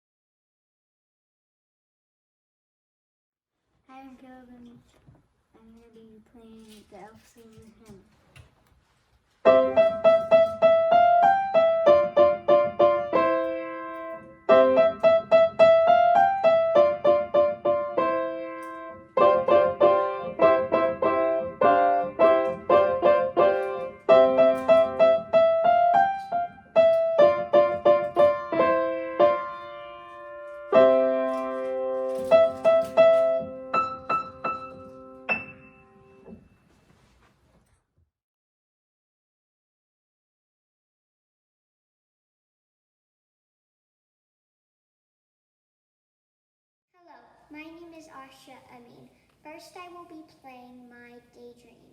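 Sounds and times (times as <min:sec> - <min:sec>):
solo piano piece: 0:09.4 - 0:36.6.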